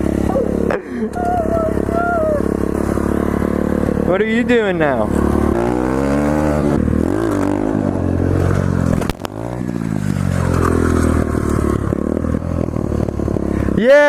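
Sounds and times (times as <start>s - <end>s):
motorcycle engine revving: 0.0s - 14.0s
sharp click: 9.0s - 9.4s.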